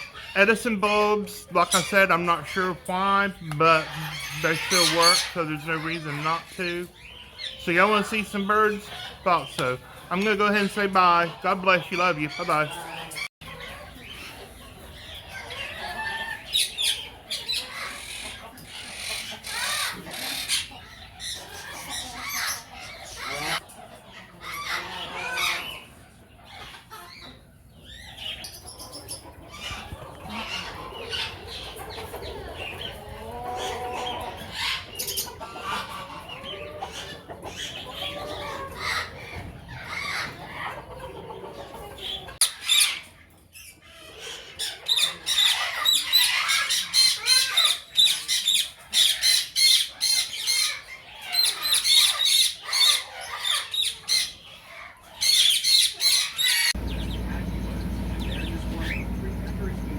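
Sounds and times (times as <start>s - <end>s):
parrots squawking: 0.0s - 13.7s, 15.1s - 23.7s, 43.9s - 59.9s.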